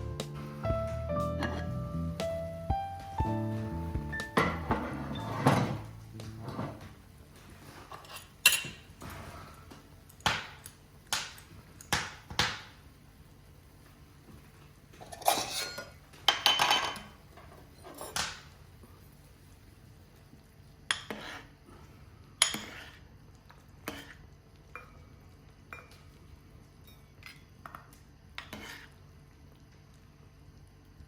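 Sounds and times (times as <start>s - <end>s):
dishes and utensils clattering: 1.3s - 1.8s, 4.1s - 9.6s, 15.0s - 18.4s.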